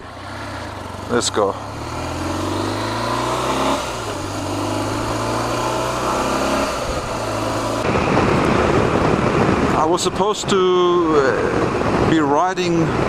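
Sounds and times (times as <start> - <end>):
motorcycle engine accelerating: 0.0 - 9.7
wind noise on microphone: 3.4 - 13.0.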